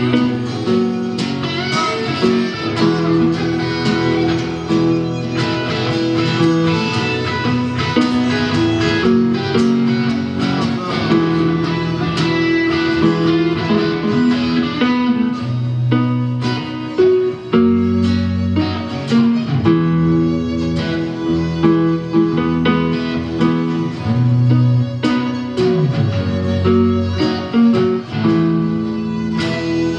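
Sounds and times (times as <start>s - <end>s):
guitar chords and plucked notes: 0.0s - 29.9s
live band playing instrumental: 0.0s - 29.9s.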